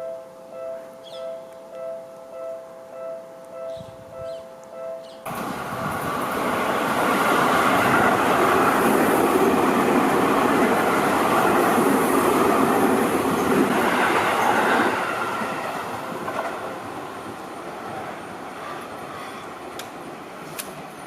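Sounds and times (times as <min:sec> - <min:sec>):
electric train passing: 0:00.0 - 0:21.0.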